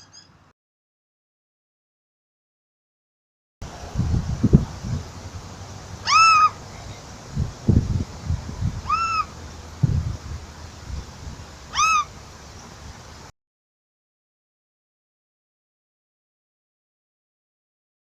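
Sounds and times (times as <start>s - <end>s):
bird meow-like call: 0.0s - 0.4s, 6.0s - 6.6s, 8.8s - 9.3s, 11.7s - 12.1s
low thumps and rumbles: 3.6s - 5.4s, 7.3s - 11.4s.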